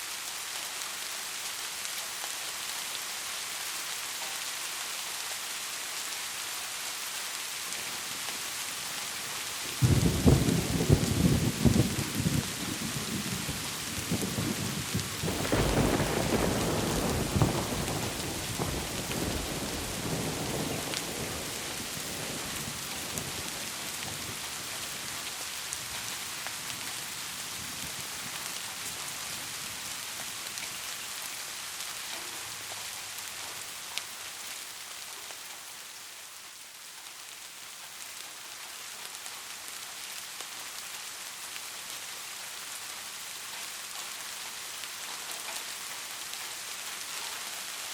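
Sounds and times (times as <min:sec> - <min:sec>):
steady rain: 0:00.0 - 0:47.9
thunder rumbling: 0:09.8 - 0:24.4.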